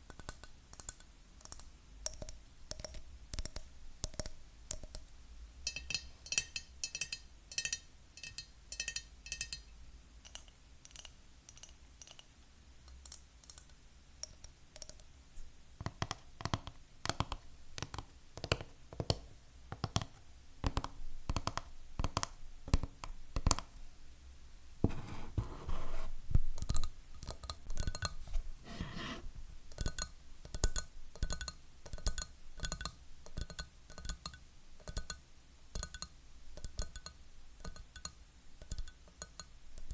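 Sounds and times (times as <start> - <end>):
fingernails scratching: 28.2 - 29.3.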